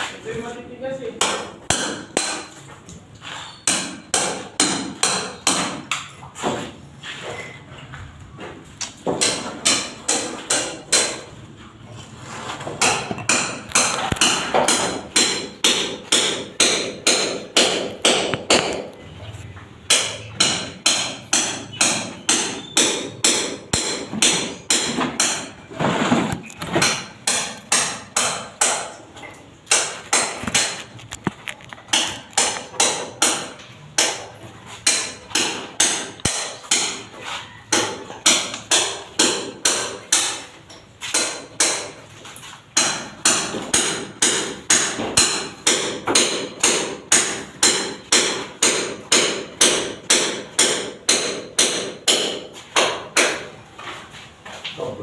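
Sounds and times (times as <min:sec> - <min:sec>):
hammer striking: 0:01.2 - 0:02.6, 0:03.6 - 0:06.6, 0:09.0 - 0:11.3, 0:12.8 - 0:19.0, 0:19.9 - 0:25.6, 0:26.8 - 0:29.0, 0:29.7 - 0:30.8, 0:31.9 - 0:37.1, 0:37.7 - 0:42.0, 0:42.8 - 0:53.5.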